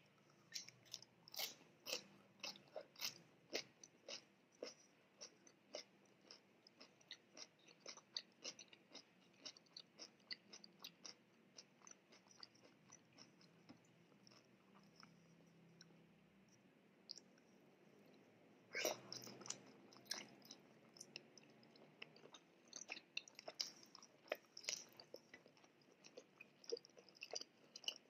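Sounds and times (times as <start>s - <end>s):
chewing crunchy cabbage: 0.4s - 15.2s, 18.7s - 28.0s.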